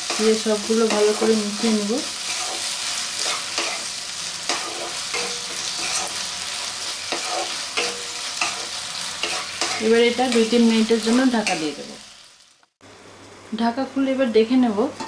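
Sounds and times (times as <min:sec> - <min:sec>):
frying hiss: 0:00.0 - 0:15.0
spatula scraping and tapping pan: 0:04.5 - 0:06.2, 0:07.0 - 0:10.6.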